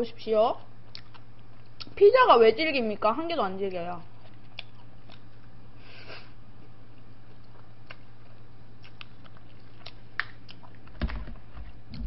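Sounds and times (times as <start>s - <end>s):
steady low hum: 0.0s - 12.0s
chewing spaghetti: 0.6s - 2.0s, 4.0s - 5.6s, 6.5s - 12.0s.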